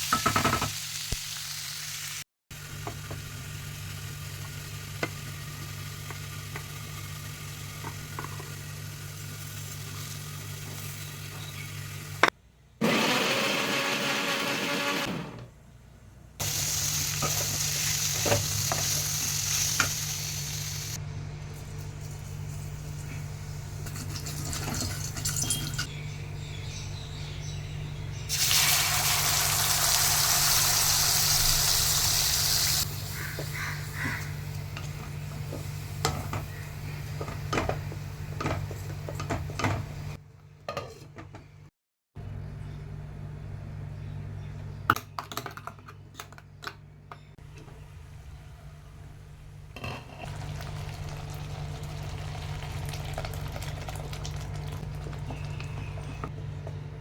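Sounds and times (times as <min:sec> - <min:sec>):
cooking hiss: 0:16.4 - 0:21.0, 0:28.3 - 0:37.2.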